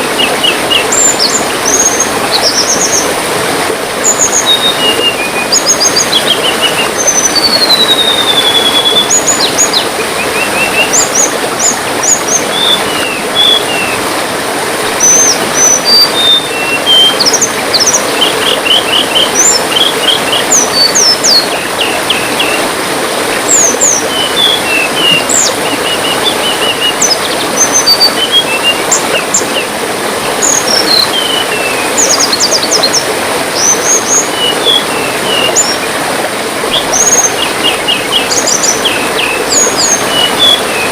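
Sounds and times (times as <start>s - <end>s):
water trickling: 0.0s - 40.9s
songbirds chirping: 36.6s - 40.9s.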